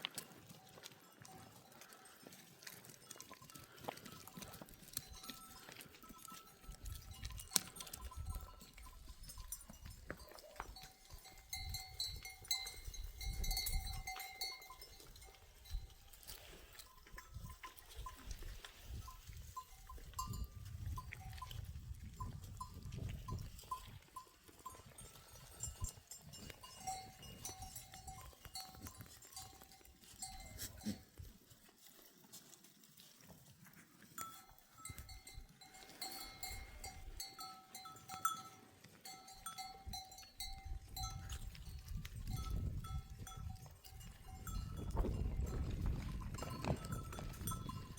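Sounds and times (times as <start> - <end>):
goats and sheep bleating: 0.0 - 15.3, 22.9 - 41.6
animal bells clinking: 0.0 - 47.9
wind buffeting microphone: 17.2 - 23.8, 40.5 - 47.9.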